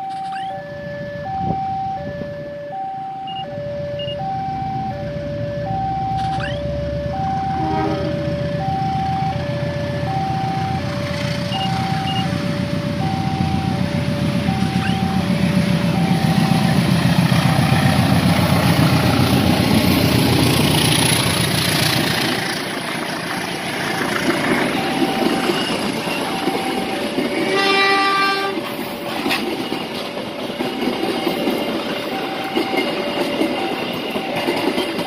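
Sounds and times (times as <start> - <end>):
train coaches rolling on rails: 0.0 - 2.2, 3.0 - 35.0
two-tone level-crossing alarm: 0.0 - 21.2, 23.5 - 35.0
diesel locomotive engine rumble: 0.0 - 35.0
train horn: 7.4 - 8.5, 27.3 - 28.7.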